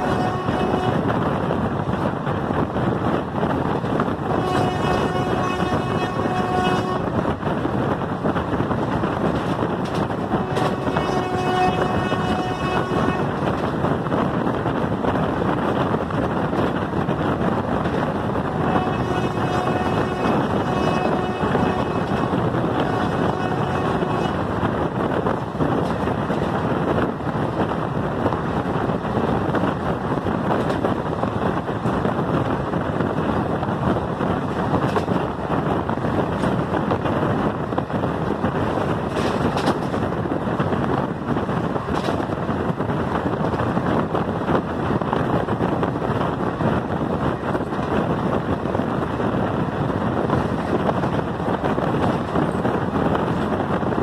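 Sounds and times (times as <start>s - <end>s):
moving train rushing: 0.0s - 54.0s
wind buffeting microphone: 0.0s - 54.0s.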